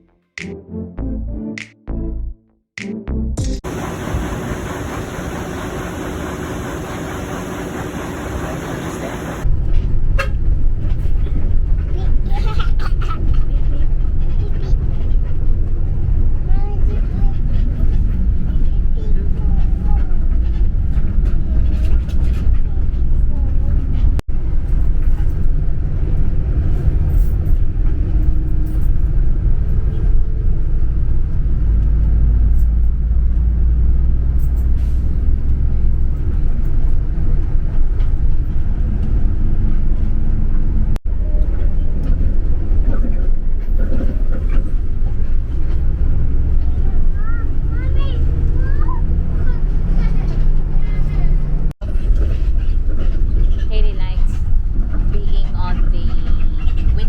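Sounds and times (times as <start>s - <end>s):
vehicle engine and road noise: 3.4s - 57.0s.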